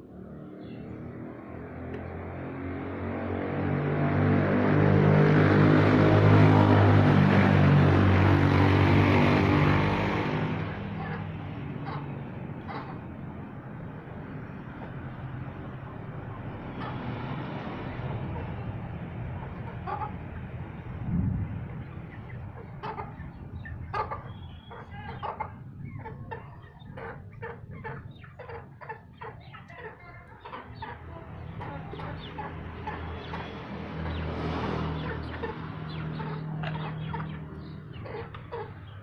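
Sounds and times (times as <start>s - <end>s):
motor vehicle passing: 0.0s - 39.0s
chickens clucking: 5.2s - 21.0s, 21.6s - 39.0s.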